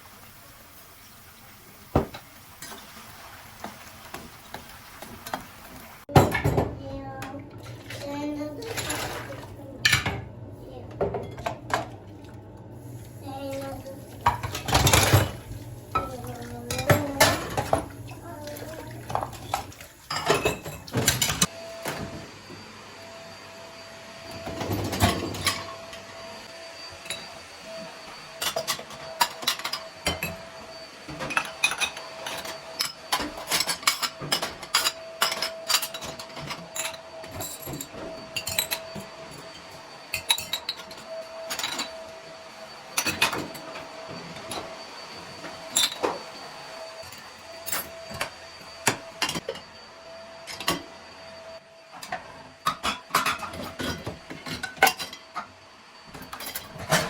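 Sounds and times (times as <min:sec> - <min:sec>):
dishes and glassware clinking: 0:19.1 - 0:21.5, 0:31.2 - 0:39.0, 0:52.7 - 0:55.5.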